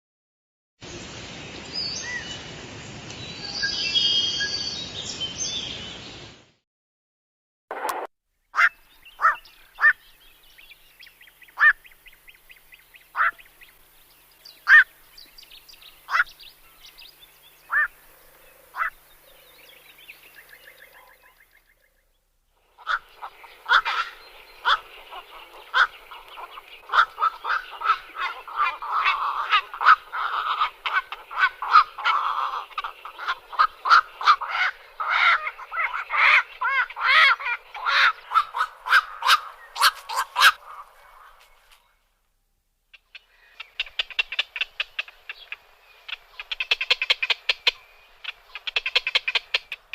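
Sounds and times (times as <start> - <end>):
herons croaking: 7.8 - 13.9, 14.6 - 21.9, 22.6 - 41.8, 42.9 - 49.9.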